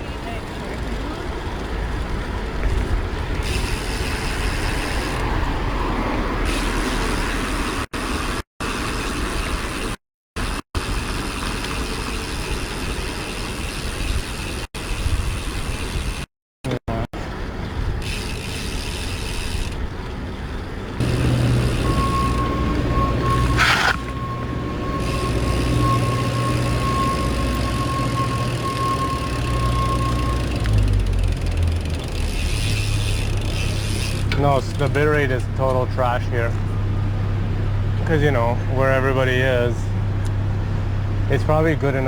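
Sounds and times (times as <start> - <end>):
street traffic: 0.0 - 42.0
wind rumble on microphone: 1.3 - 5.9, 13.9 - 16.2.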